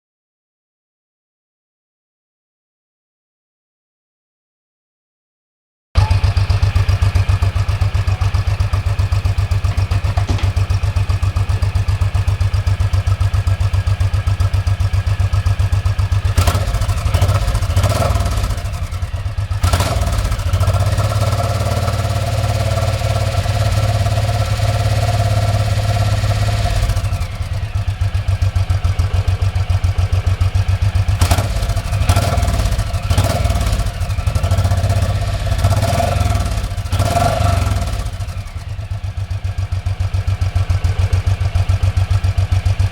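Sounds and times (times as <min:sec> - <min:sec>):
motorcycle engine idling: 0:06.0 - 0:42.9.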